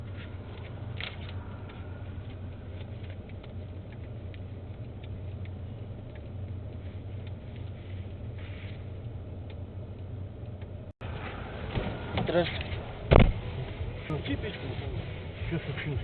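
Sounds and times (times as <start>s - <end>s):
vehicle running drone: 0.0s - 16.0s.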